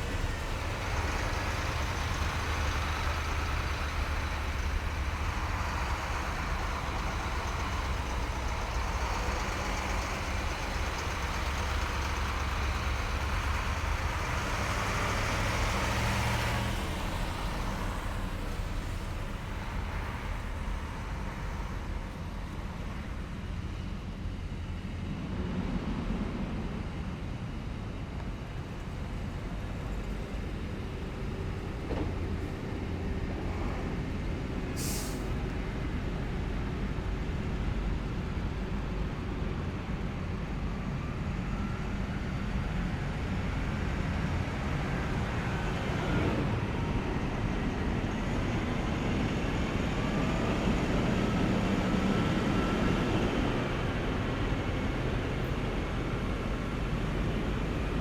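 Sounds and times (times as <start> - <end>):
heavy vehicle engines rumbling: 0.0 - 58.0
sharp hiss: 34.8 - 35.3.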